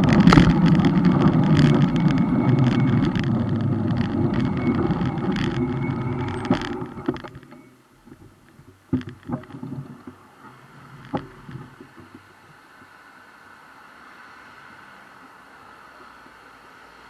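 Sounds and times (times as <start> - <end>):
sharp clicks and knocks: 0.0 - 12.3
wind and road rumble: 0.0 - 17.0.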